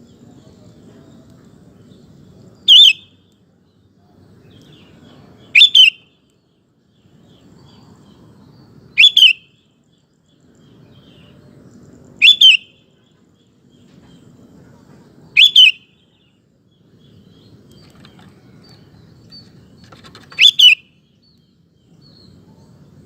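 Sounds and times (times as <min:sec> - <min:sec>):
bulbul calls: 0:02.6 - 0:03.2, 0:05.5 - 0:06.1, 0:09.0 - 0:09.5, 0:12.2 - 0:12.8, 0:15.3 - 0:15.9, 0:17.4 - 0:21.0.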